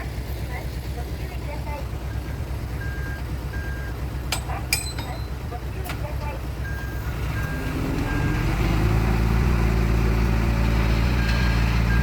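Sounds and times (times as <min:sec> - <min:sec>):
heavy diesel engine under load: 0:00.0 - 0:12.0
reversing alarm beeping: 0:02.8 - 0:04.0.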